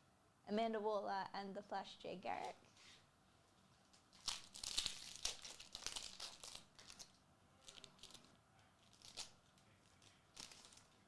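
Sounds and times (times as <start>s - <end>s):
card pack wrapper tearing and crinkling: 4.2s - 8.3s, 8.9s - 9.4s, 10.3s - 11.0s.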